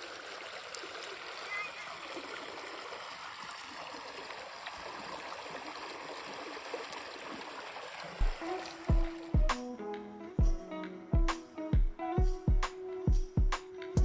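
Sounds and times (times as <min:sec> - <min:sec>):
stream water flowing: 0:00.0 - 0:09.6
music with low thump: 0:08.2 - 0:14.0.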